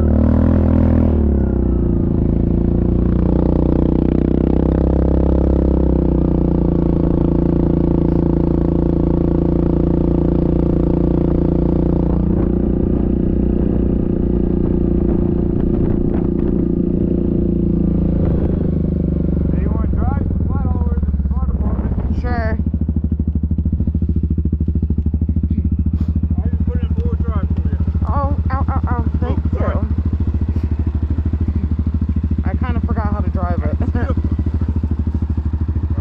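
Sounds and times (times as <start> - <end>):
atv engine running: 0.0 - 36.0.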